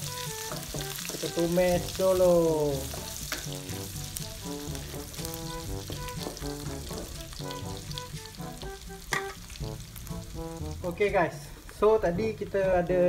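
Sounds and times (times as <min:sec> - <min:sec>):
spatula stirring in wok: 0:00.0 - 0:02.0
background music: 0:00.0 - 0:13.0
food sizzling in hot oil: 0:00.0 - 0:13.0.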